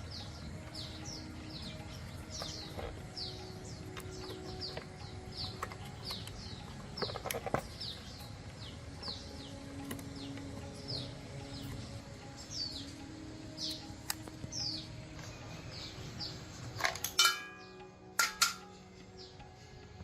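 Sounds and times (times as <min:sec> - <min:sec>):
bird chirping: 0:00.0 - 0:20.0
sharp clicks and knocks: 0:02.3 - 0:08.3.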